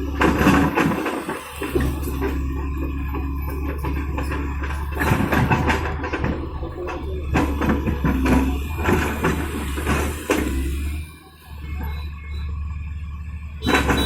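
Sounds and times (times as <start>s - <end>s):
irregular knocks and clatter: 0.0s - 11.0s
diesel engine running: 0.0s - 14.0s.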